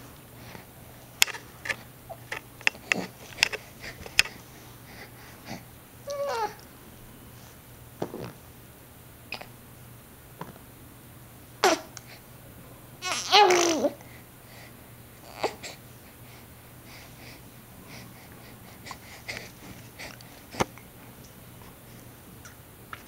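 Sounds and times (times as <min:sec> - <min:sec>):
baby sucking on fists: 0:01.2 - 0:04.4
baby babbling and squealing: 0:06.1 - 0:06.6.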